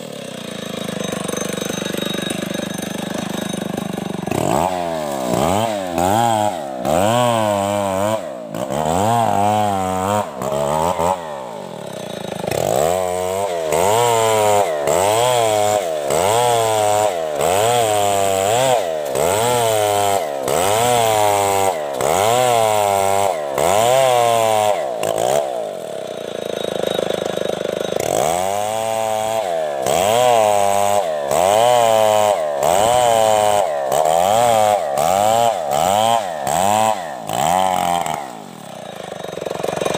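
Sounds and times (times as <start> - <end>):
chainsaw ripping a trunk: 0.0 - 39.9.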